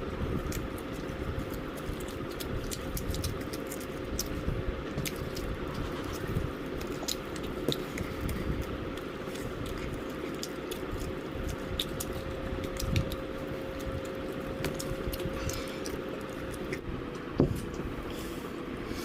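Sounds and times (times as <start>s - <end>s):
person chewing fried chicken: 0.0s - 16.9s
faint steady hum: 0.0s - 19.0s.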